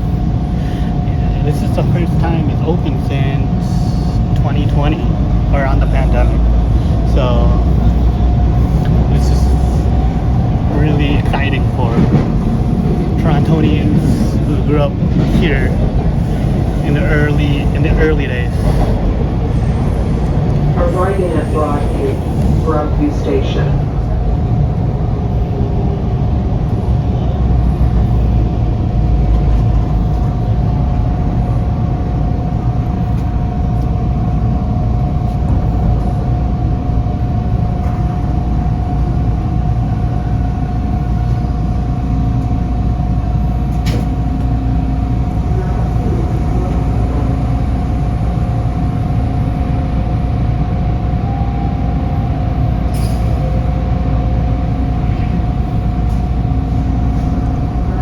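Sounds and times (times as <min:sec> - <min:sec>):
subway train interior rumble: 0:00.0 - 0:58.0
steady tone: 0:38.4 - 0:58.0.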